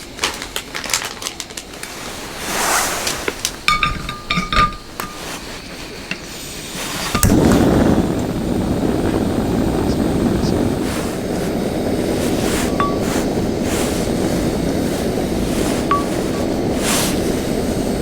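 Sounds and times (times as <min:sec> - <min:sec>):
small hard objects clinking: 0:00.2 - 0:02.4, 0:03.0 - 0:05.4, 0:12.6 - 0:14.0
steady rushing noise: 0:06.4 - 0:18.0.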